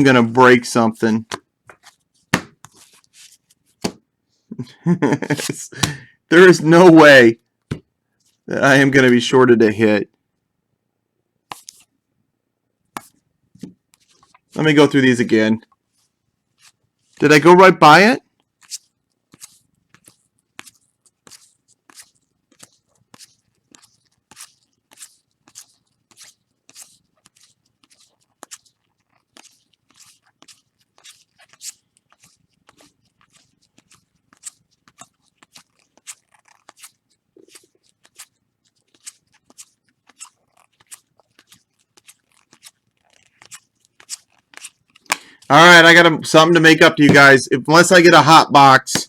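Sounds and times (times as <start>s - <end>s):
cards flipping with faint clicks: 1.2s - 4.0s, 11.5s - 11.9s, 13.0s - 14.5s, 18.4s - 45.5s.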